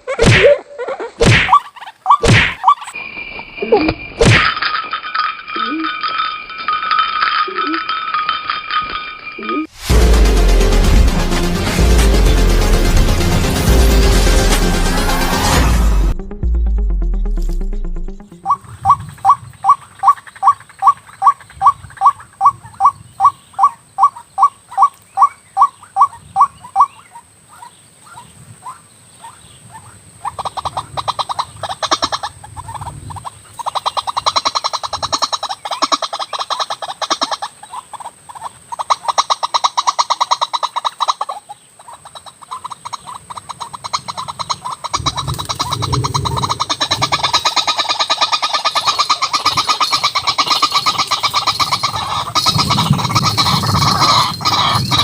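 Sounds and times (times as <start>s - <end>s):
waterhen calling: 0.0s - 3.0s, 18.4s - 55.0s.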